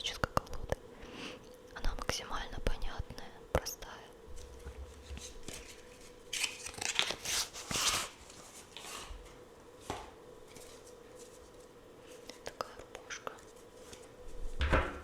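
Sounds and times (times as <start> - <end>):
cards rustling: 4.4 - 12.4.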